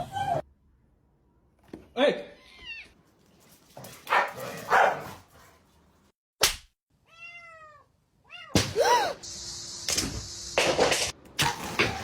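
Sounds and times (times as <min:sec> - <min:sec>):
cat meowing: 0:07.0 - 0:08.6.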